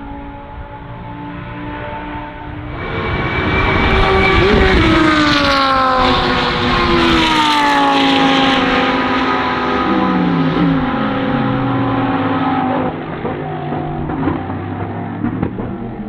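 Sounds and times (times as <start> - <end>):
race car engine passing: 0.1 - 16.0
second engine note: 8.4 - 16.0.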